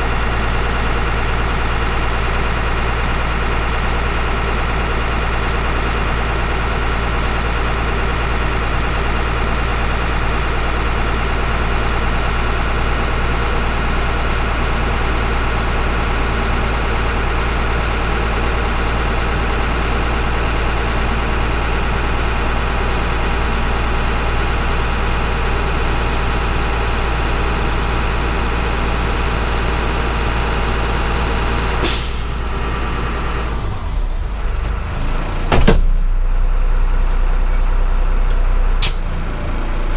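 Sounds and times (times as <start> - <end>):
diesel bus engine idling: 0.0 - 39.9
air brake burst: 31.8 - 32.4, 38.8 - 39.1.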